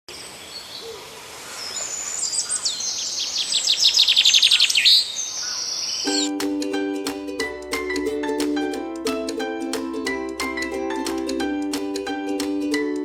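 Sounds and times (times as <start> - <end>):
birds singing and chirping: 0.1 - 6.3
bird trill: 1.5 - 6.3
light instrumental music: 6.1 - 13.0.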